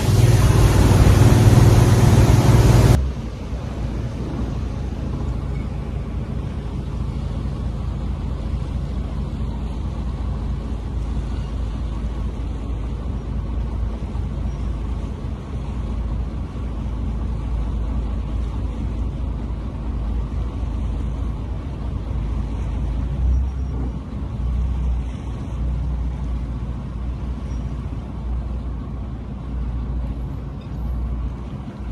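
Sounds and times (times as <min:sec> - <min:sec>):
deep low rumbles: 0:00.0 - 0:14.2
boat engine drone: 0:00.0 - 0:31.9
rushing water and wind: 0:00.0 - 0:31.9.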